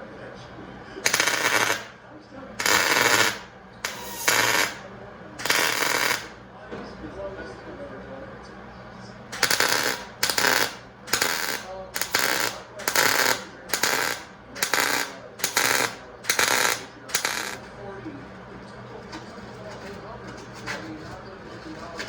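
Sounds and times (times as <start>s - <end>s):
welder crackling bursts: 1.0s - 2.0s, 2.6s - 4.8s, 5.4s - 6.4s, 9.3s - 17.6s.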